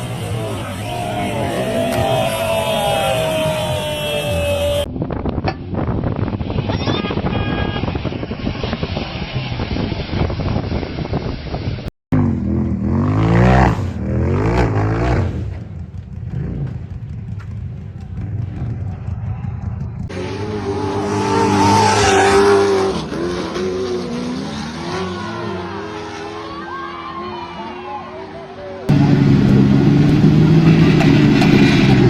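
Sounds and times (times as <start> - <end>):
off-road engines revving: 0.0 - 4.9, 11.4 - 32.0.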